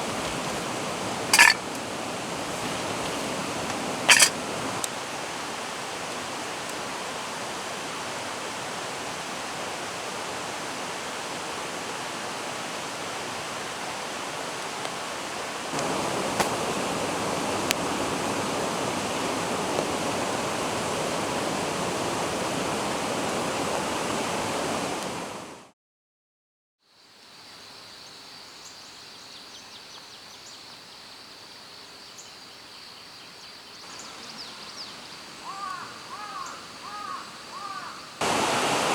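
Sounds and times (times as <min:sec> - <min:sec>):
forest stream rushing: 0:00.0 - 0:25.7, 0:33.3 - 0:38.9.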